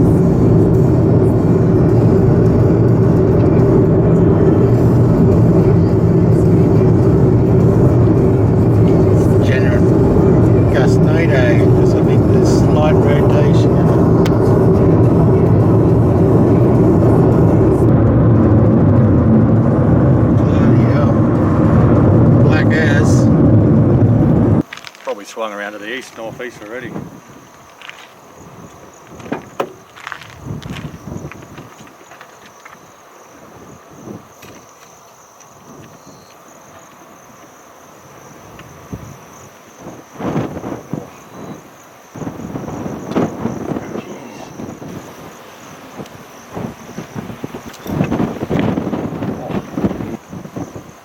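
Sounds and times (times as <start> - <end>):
loud low rumble: 0.0 - 24.7
car driving rumble: 0.0 - 51.0
insects chirping: 0.0 - 51.0
wind buffeting car: 0.0 - 51.0.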